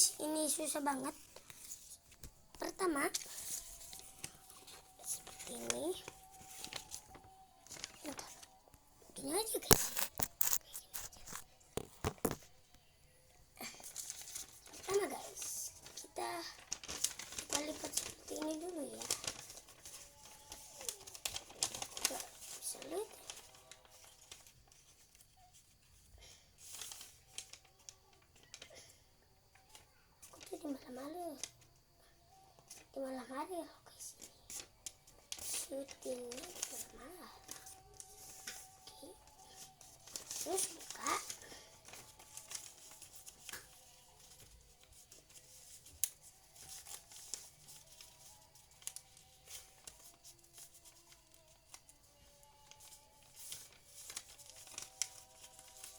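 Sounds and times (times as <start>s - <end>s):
paper rustling while folded: 0.0s - 12.6s, 13.6s - 31.7s, 32.3s - 33.4s, 34.0s - 55.9s
paper snap: 9.4s - 12.5s, 16.6s - 24.5s, 39.8s - 51.8s, 52.7s - 55.9s.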